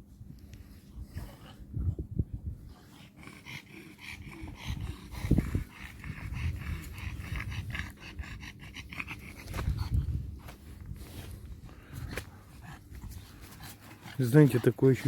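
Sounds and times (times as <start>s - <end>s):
dog panting: 2.7s - 15.0s.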